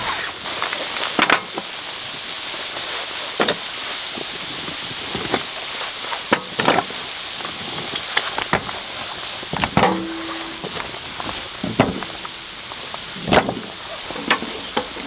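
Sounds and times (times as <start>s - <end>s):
firewood crackling in stove: 5.5s - 15.0s.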